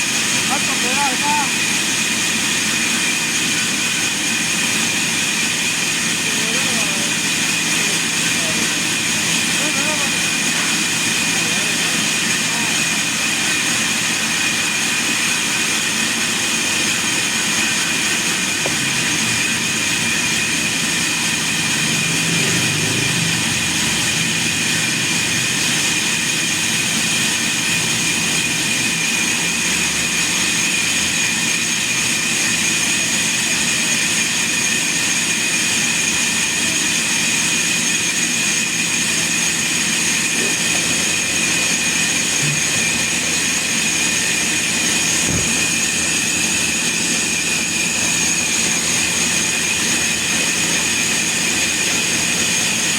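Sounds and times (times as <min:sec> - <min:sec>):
sawmill machinery running: 0:00.0 - 0:52.9
high-pitched whine: 0:16.4 - 0:28.4, 0:37.9 - 0:52.9.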